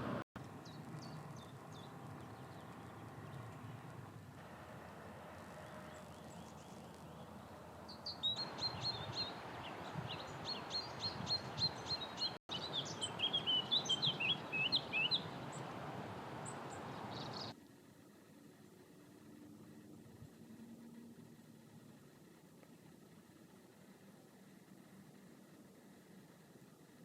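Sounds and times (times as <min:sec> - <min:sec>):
background hiss: 0:00.0 - 0:27.0
songbird singing: 0:00.4 - 0:17.6.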